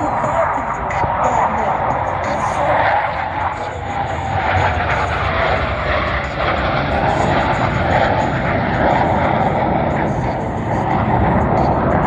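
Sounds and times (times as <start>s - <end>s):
jet noise rush and rumble: 0.0s - 12.0s.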